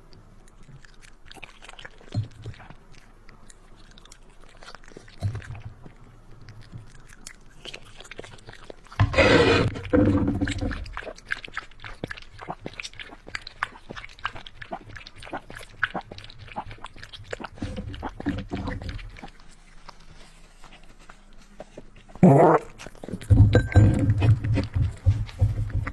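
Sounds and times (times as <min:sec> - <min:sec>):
puppy chewing food: 0:00.0 - 0:25.9
dog vocalization: 0:22.0 - 0:25.9.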